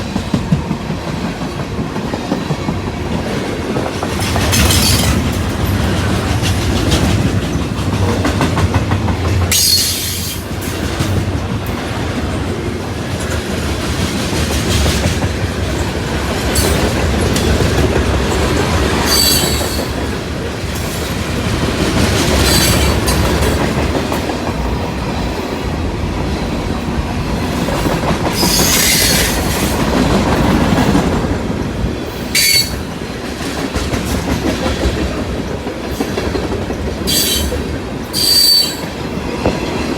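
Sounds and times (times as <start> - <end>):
train wheels clattering on rails: 0.0 - 39.9
high-pitched wheel squeals: 19.1 - 19.9, 32.4 - 32.8, 38.2 - 38.9.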